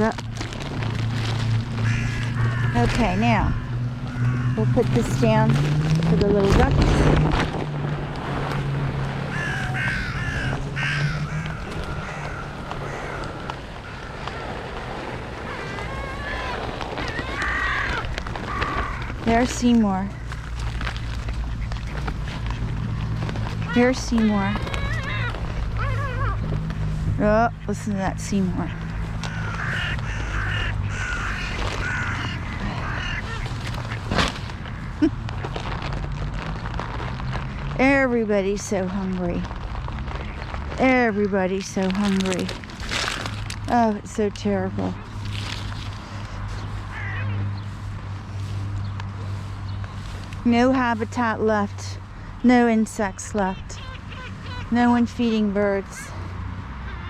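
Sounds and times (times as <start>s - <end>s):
wind noise: 0.0s - 50.5s
crows cawing: 1.4s - 5.4s, 9.2s - 26.9s, 28.6s - 35.5s, 46.0s - 48.5s, 56.8s - 57.0s.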